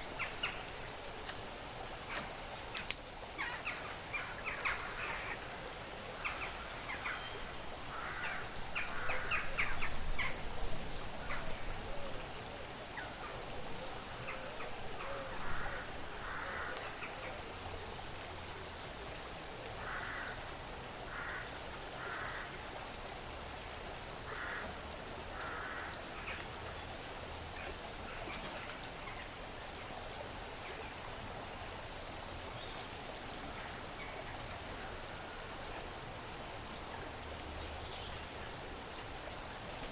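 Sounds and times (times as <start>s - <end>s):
sharp clicks and snaps: 2.1s - 3.3s
steady soft hiss: 24.1s - 39.9s.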